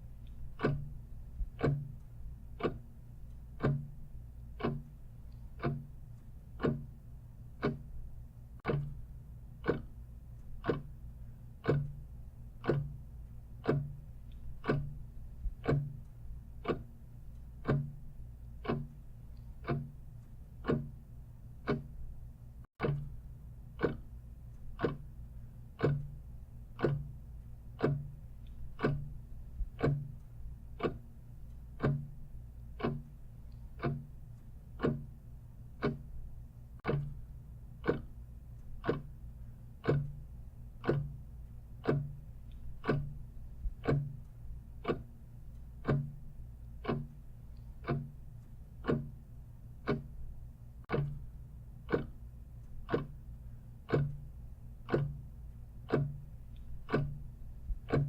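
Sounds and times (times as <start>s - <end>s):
clock ticking: 0.0s - 58.0s
faint low hum: 0.0s - 58.0s.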